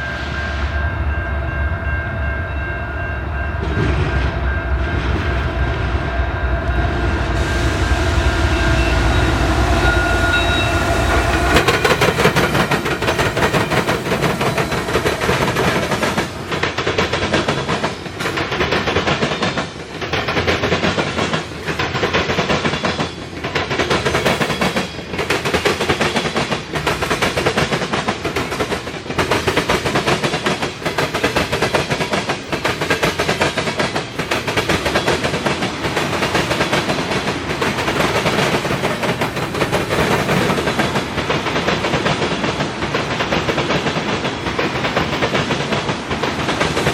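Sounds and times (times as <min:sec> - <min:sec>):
train wheels clattering on rails: 0:00.0 - 0:46.9
locomotive low rumble: 0:03.2 - 0:13.1.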